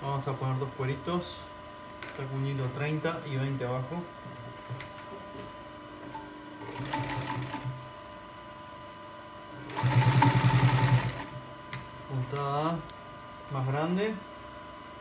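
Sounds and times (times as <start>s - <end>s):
sewing machine stitching: 6.6s - 7.7s, 9.7s - 11.3s.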